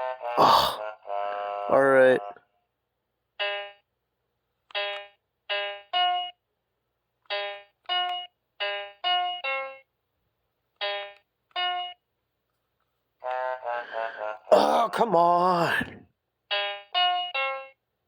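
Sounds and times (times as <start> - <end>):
electronic game piano notes: 3.4 - 3.8.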